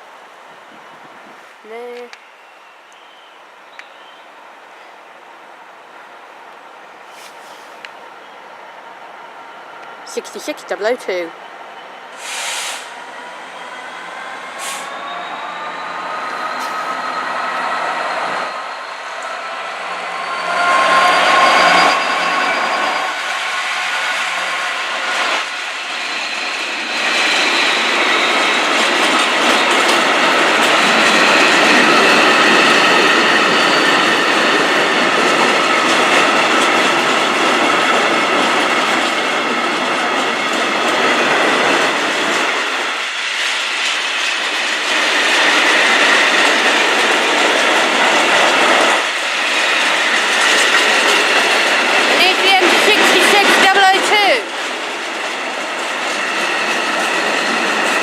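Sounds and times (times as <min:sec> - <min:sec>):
high-pitched wheel squeal: 0:13.3 - 0:23.4
train wheels clattering over rails: 0:24.1 - 0:58.0.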